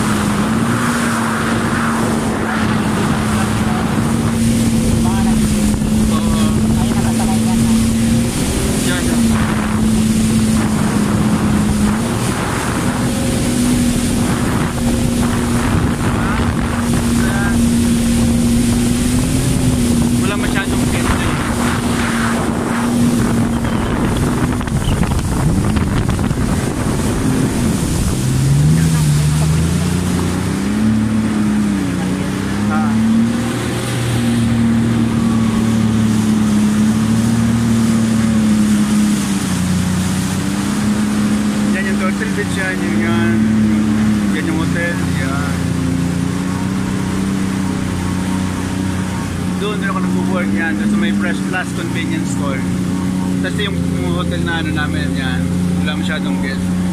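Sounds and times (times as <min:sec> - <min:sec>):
jet ski engine droning: 0:00.0 - 0:56.9
water rushing: 0:00.0 - 0:56.9
wind buffeting microphone: 0:00.0 - 0:56.9.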